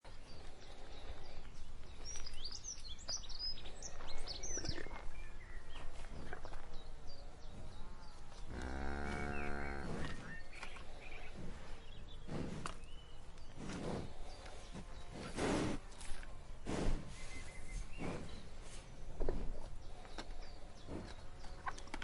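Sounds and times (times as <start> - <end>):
outdoor background noise: 0.0 - 22.0
cow mooing: 8.5 - 10.2.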